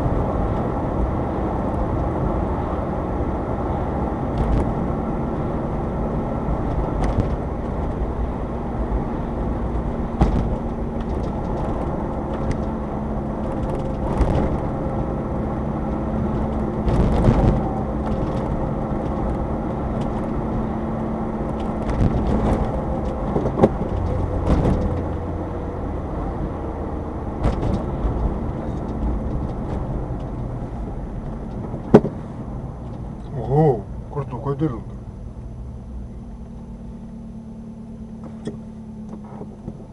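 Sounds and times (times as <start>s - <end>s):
road rumble: 0.0s - 39.9s
knock from bumps: 10.2s - 10.6s.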